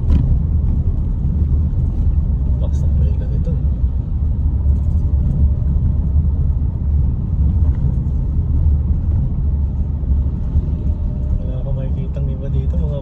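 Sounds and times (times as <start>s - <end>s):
loud low rumble: 0.0s - 13.0s.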